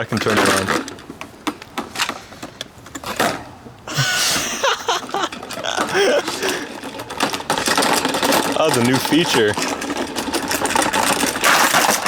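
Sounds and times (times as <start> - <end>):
table fan rattling and clicking: 4.5 - 12.0.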